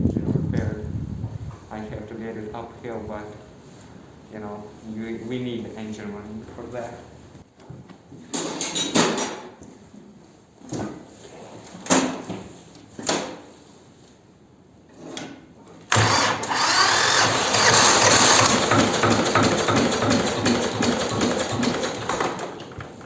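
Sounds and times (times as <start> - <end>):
electric starter cranking: 15.9 - 22.7
tractor engine running: 16.0 - 22.2.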